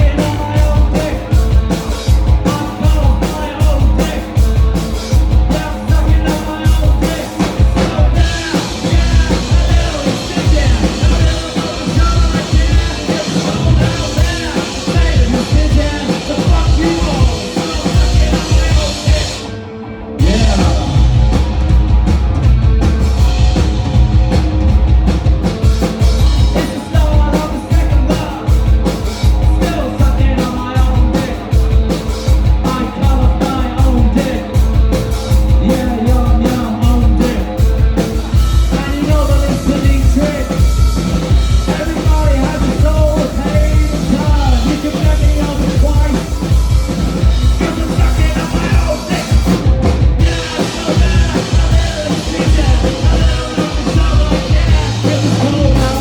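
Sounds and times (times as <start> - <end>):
person singing: 0.0 - 1.8, 2.4 - 21.4, 26.3 - 56.0
pounding drum kit: 0.0 - 19.6, 20.2 - 56.0
live rock band playing: 0.0 - 56.0.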